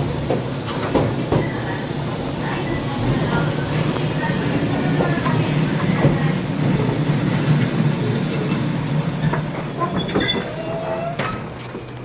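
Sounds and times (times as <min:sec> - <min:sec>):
train wheels rumbling on rail: 0:00.0 - 0:12.0
high wheel squeals: 0:09.8 - 0:11.6.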